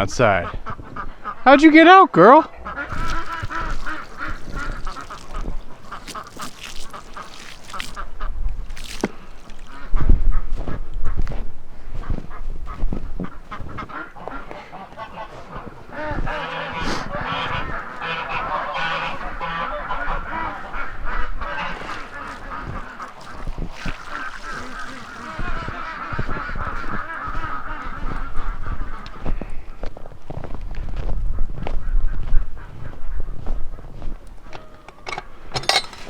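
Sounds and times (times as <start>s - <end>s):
ducks calling: 2.3s - 29.6s
geese honking: 2.5s - 8.3s, 12.0s - 29.2s.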